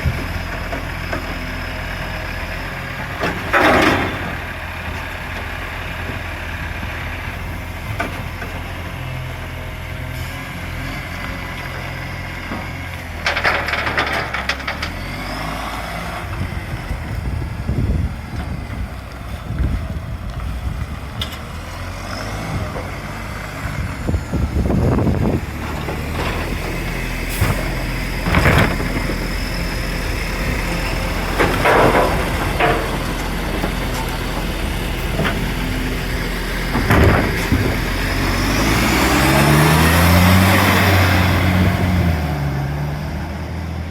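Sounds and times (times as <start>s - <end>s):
garbage truck diesel engine: 0.0s - 43.9s
exhaust bursts and clanks: 3.0s - 8.6s, 12.5s - 18.9s, 23.6s - 42.8s.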